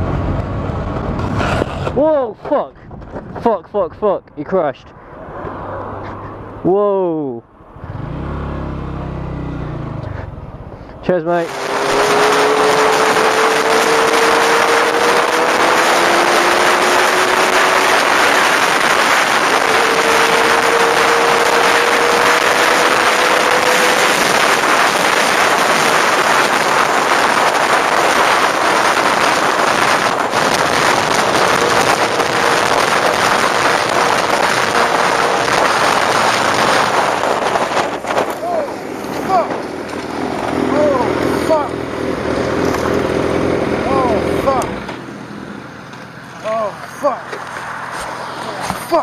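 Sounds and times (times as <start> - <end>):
motorcycle engine: 0.0 - 3.4, 7.4 - 49.0
wind rushing: 11.4 - 44.9.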